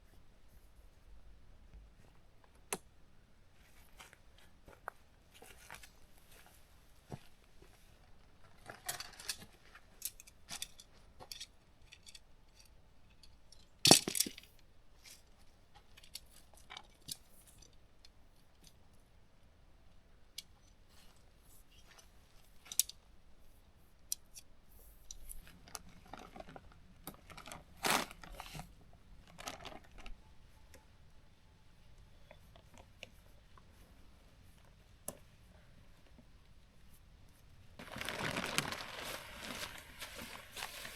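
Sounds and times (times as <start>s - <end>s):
tent gear clicking and clinking: 8.6s - 17.8s
rustling: 36.8s - 40.9s.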